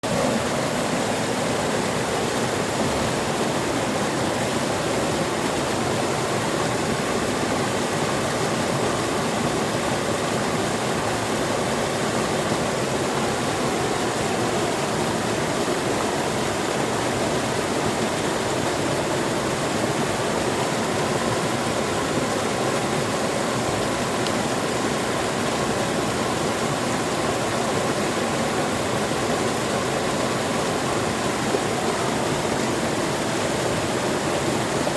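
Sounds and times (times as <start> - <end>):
waterfall roaring: 0.0 - 34.9.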